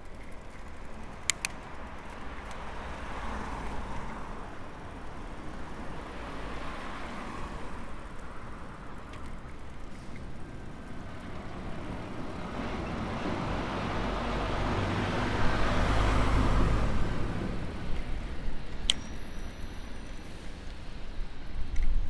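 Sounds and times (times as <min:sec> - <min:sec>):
road traffic passing: 0:00.0 - 0:22.0
sharp clicks: 0:00.2 - 0:02.6.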